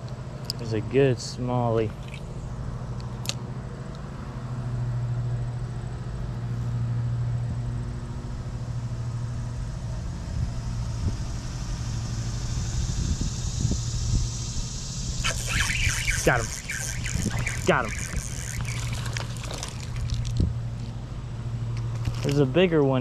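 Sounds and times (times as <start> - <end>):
vehicle engine hum: 0.0 - 23.0
hiss: 10.8 - 19.0.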